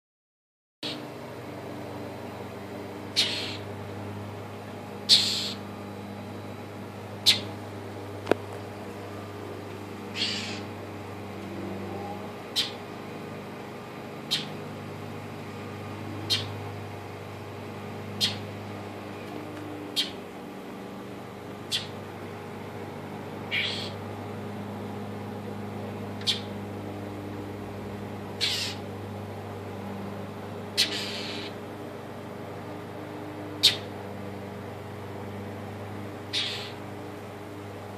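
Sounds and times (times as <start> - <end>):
bird scolding calls: 3.1 - 3.7, 5.1 - 5.6, 7.2 - 7.6, 10.1 - 10.7, 12.5 - 12.8, 14.2 - 14.6, 16.2 - 16.6, 18.2 - 18.5, 19.9 - 20.2, 21.6 - 22.0, 23.5 - 24.0, 26.2 - 26.5, 28.4 - 28.8, 30.8 - 31.6, 33.6 - 33.9, 36.3 - 36.8.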